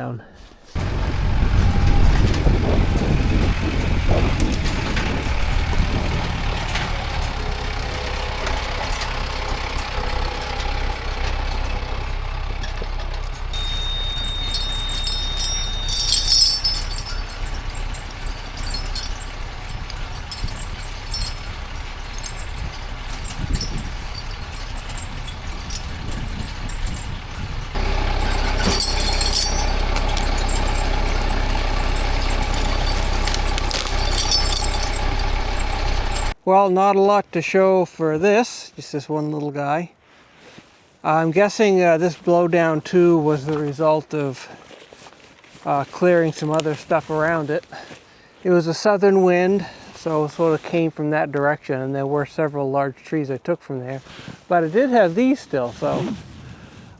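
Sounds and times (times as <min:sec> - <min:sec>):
machine engine running: 0:00.8 - 0:36.4
metal clanks: 0:00.8 - 0:36.4
thin steady whine: 0:13.6 - 0:36.4.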